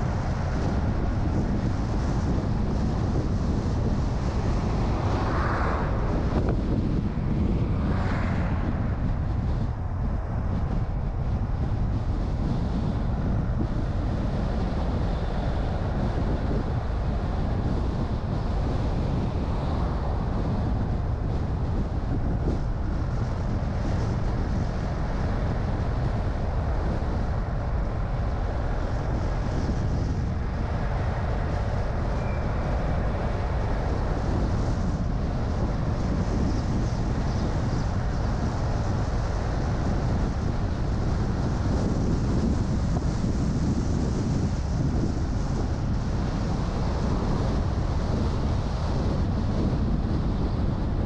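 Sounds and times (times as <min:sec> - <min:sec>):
car road and engine rumble: 0:00.0 - 0:51.0.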